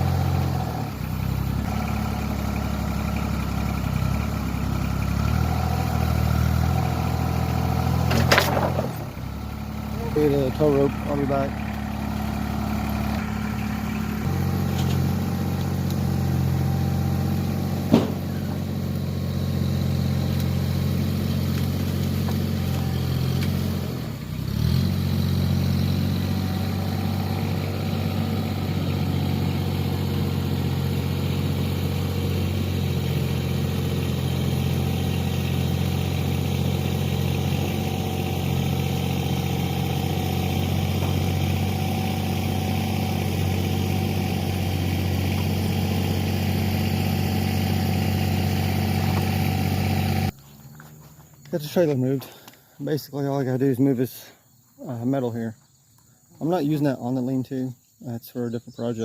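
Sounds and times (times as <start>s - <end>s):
tractor engine running: 0.0s - 52.6s
sharp knock: 17.9s - 18.4s.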